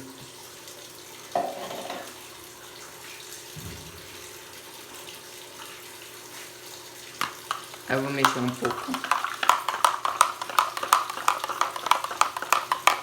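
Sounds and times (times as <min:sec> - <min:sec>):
low thump: 0:03.6 - 0:04.2.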